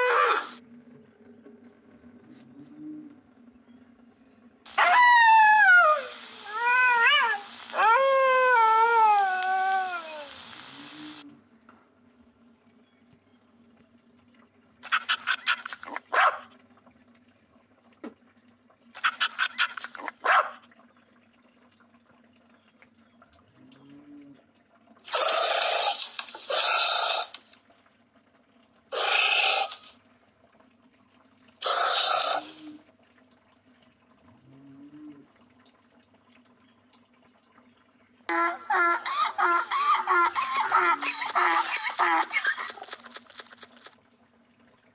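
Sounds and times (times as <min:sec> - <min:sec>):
fox howling call: 0:00.0 - 0:00.6, 0:04.7 - 0:11.2, 0:38.3 - 0:43.0
hissing huffs: 0:04.7 - 0:11.2
rapid stuttering animal calls: 0:04.7 - 0:11.2, 0:14.8 - 0:16.2, 0:19.0 - 0:20.3, 0:25.1 - 0:27.5, 0:28.9 - 0:30.0, 0:31.6 - 0:32.8, 0:38.3 - 0:44.0.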